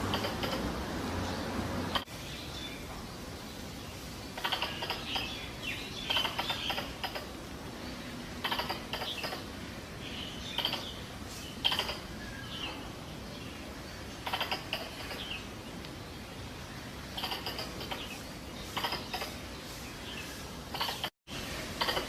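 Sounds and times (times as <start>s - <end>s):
squirrel clicking chatter and chirps: 0.0s - 0.8s, 4.3s - 7.4s, 8.4s - 9.5s, 10.4s - 12.2s, 14.2s - 16.0s, 17.1s - 19.4s, 20.7s - 21.1s, 21.8s - 22.0s.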